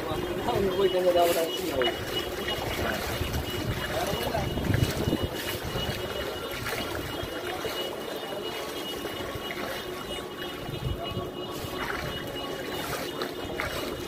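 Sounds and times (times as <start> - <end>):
flood water rushing: 0.0 - 14.0.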